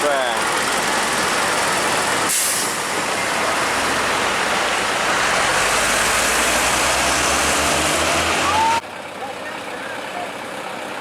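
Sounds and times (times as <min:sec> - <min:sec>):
heavy truck passing: 0:00.0 - 0:11.0
air brake hiss: 0:02.3 - 0:02.8.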